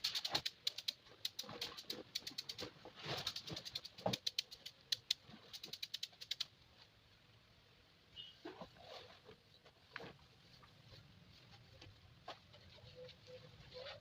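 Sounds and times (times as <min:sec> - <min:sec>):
sharp clicks and taps: 0:00.0 - 0:06.5.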